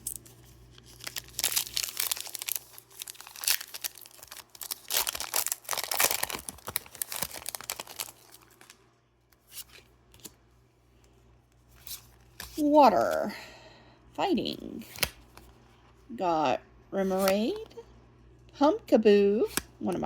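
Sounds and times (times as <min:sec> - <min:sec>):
foil wrapper tearing and crinkling: 0:00.0 - 0:08.8.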